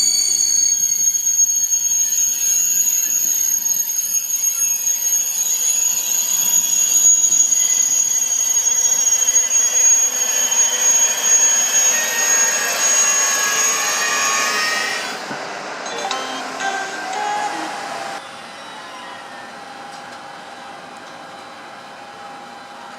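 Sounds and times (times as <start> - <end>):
electric train whine: 0.0 - 22.9
high tones shifting in pitch: 15.8 - 19.6.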